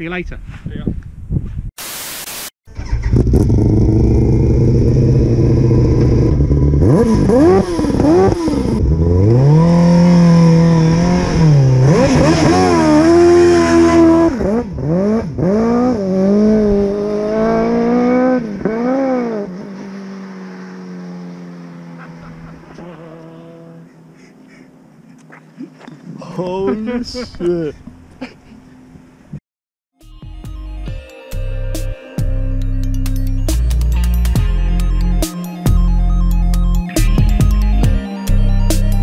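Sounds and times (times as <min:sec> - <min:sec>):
car engine revving: 0:02.8 - 0:24.3.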